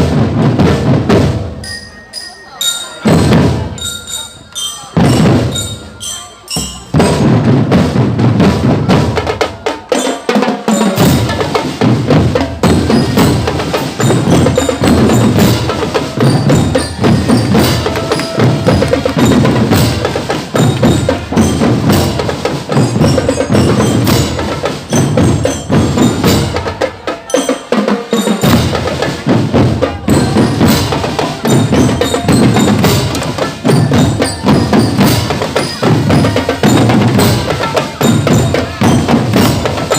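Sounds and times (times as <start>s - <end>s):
marching drums: 0.0s - 1.8s, 2.7s - 39.9s
bell-like mallet instruments: 1.5s - 8.2s, 9.4s - 39.9s.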